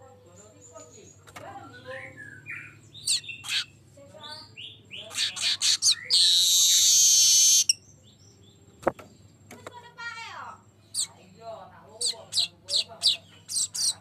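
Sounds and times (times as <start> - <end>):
bird chirping and chattering: 0.0 - 9.6, 10.6 - 14.0
buzzy sizzling bird trill: 4.4 - 7.8.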